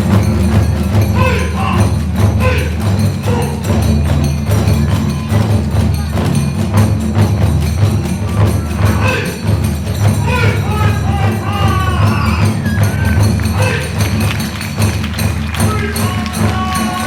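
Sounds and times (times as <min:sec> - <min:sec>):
clashing hand cymbals: 0:00.0 - 0:17.0
taiko drums beating fast: 0:00.0 - 0:17.0
bamboo flute phrases: 0:01.0 - 0:03.8, 0:08.3 - 0:09.6, 0:10.2 - 0:14.6.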